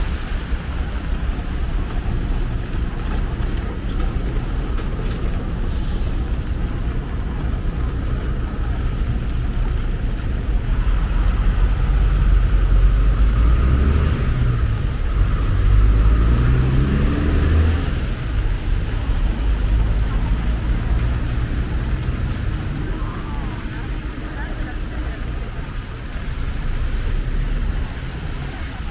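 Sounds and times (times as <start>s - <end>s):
traffic with tyre hiss: 0.0s - 28.9s
vehicle engine revving: 10.6s - 24.2s, 25.3s - 28.9s.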